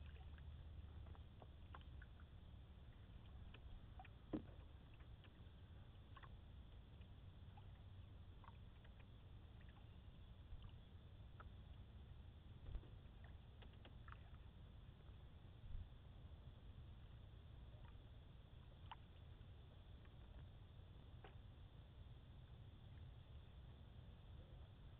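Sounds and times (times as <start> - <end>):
water drips and ticks: 0.0 - 15.3, 17.8 - 21.4
low steady rumble: 0.0 - 24.9.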